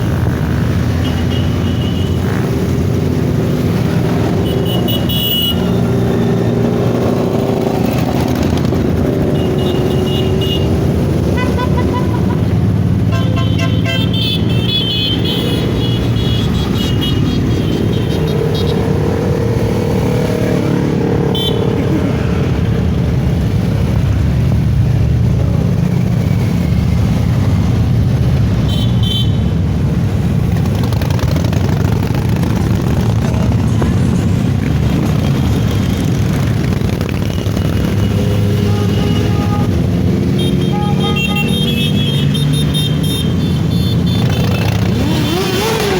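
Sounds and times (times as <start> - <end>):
motorcycle engines running: 0.0 - 45.9
horn toots: 9.2 - 19.0, 21.2 - 21.9, 37.6 - 45.9.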